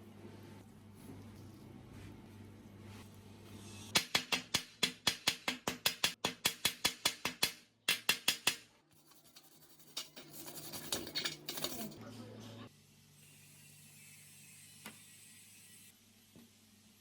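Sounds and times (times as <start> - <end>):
rhythmic scraping strokes: 9.0 - 12.0.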